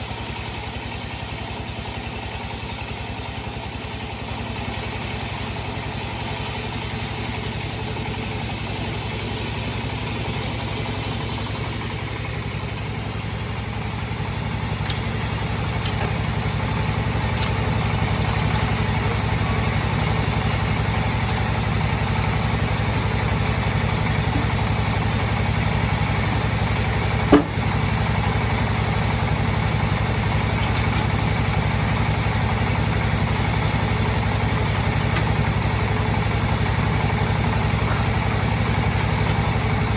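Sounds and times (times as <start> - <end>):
bandsaw humming: 0.0 - 3.8, 9.0 - 26.4.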